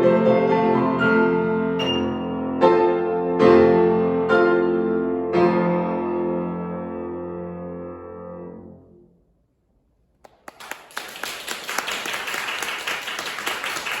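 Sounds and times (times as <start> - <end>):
people clapping: 10.1 - 14.0.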